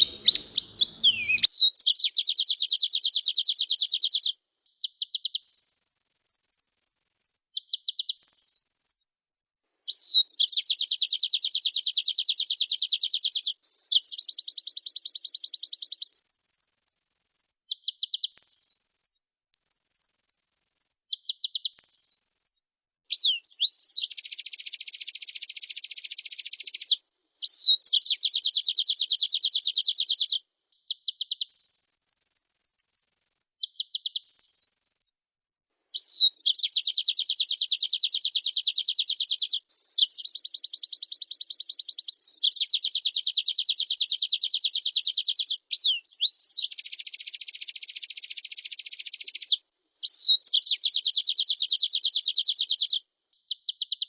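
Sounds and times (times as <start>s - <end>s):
bird singing buzzy trills: 0.0s - 2.1s, 5.4s - 7.4s, 8.2s - 9.0s, 18.3s - 21.0s, 21.7s - 22.6s, 31.5s - 33.5s, 34.2s - 35.1s.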